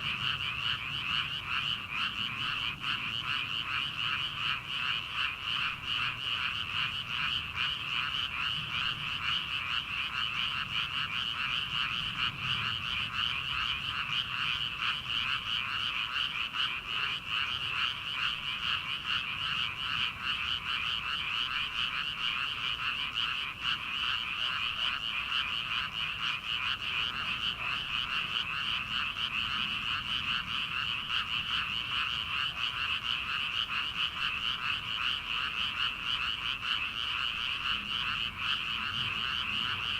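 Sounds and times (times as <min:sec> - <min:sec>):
chorus of frogs calling: 0:00.0 - 0:39.9.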